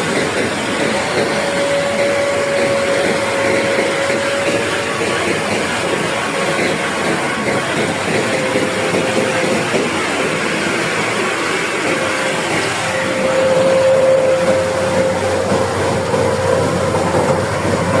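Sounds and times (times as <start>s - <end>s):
combine harvester droning: 10.8s - 18.0s.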